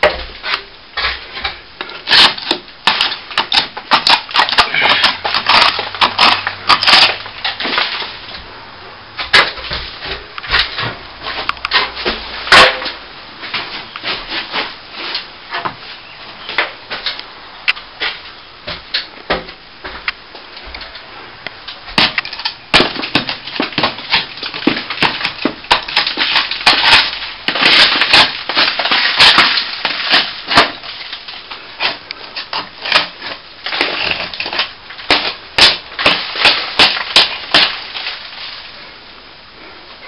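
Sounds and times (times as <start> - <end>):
crumbling plaster cracking: 0.0 - 8.5, 20.7 - 39.0
hand tool scraping plaster: 1.0 - 7.2, 31.8 - 38.1.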